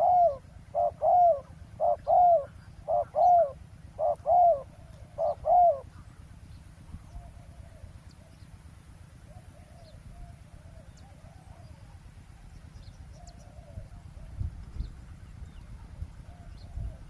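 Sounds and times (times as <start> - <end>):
dove cooing: 0.0 - 6.1, 7.1 - 8.4, 9.2 - 12.5, 13.1 - 14.5, 15.8 - 17.0
wind on microphone: 13.7 - 17.0.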